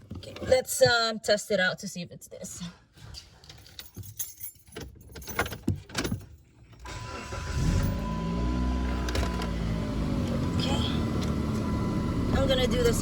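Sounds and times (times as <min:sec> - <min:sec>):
car keys jangling: 0:03.4 - 0:08.1
car engine starting and running: 0:06.8 - 0:13.0.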